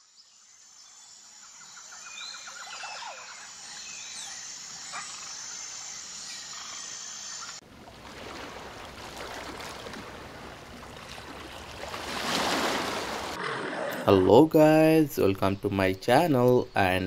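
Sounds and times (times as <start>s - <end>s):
high insect drone: 0.0s - 7.6s, 14.2s - 17.0s.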